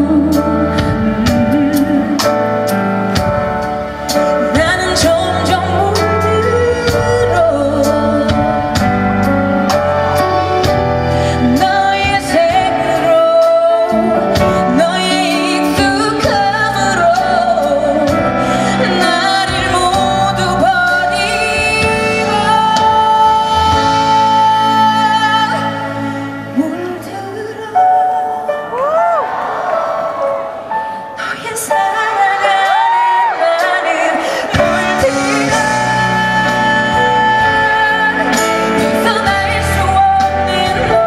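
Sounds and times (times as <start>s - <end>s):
woman singing live: 0.0s - 29.6s, 31.0s - 41.0s
amplified backing music: 0.0s - 41.0s.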